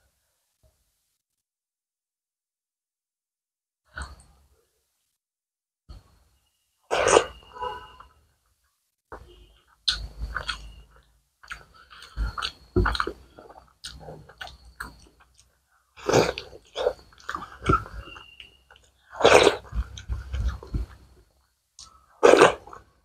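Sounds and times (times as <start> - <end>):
chewing food: 9.2 - 21.2.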